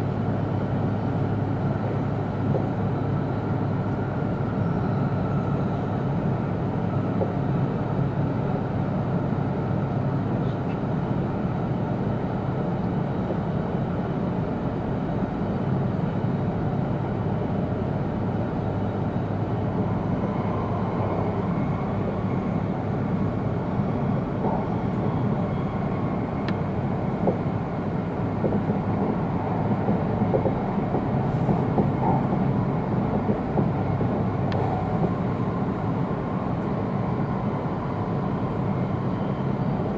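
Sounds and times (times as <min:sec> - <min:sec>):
train cabin low rumble: 0:00.0 - 0:39.9.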